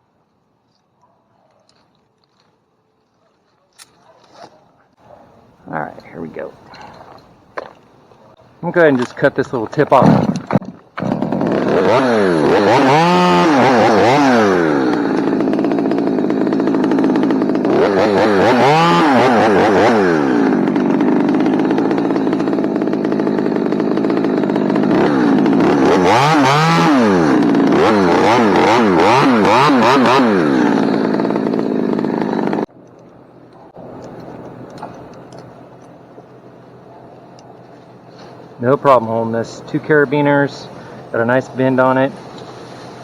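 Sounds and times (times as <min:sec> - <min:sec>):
chainsaw revving and cutting: 0:09.8 - 0:32.7, 0:37.9 - 0:43.0.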